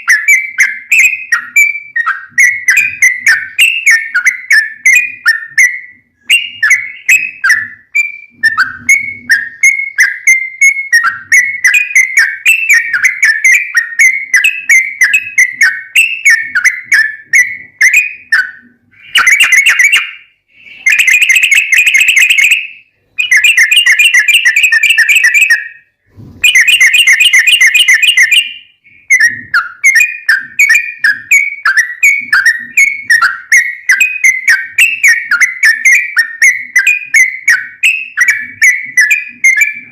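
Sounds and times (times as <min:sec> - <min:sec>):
bird chirping phrases: 0:00.0 - 0:39.9.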